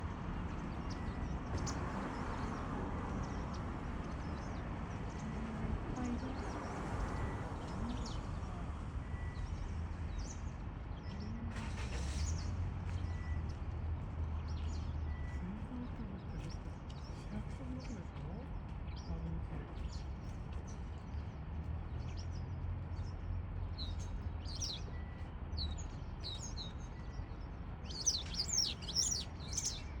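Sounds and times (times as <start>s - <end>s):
birds calling: 19.7s - 30.0s
high bird chirps: 27.9s - 30.0s.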